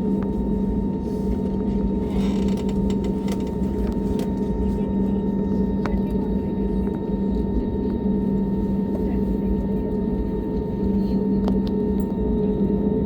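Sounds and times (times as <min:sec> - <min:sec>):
airliner cabin engine drone: 0:00.0 - 0:13.0
faint cabin creaks: 0:02.0 - 0:04.4.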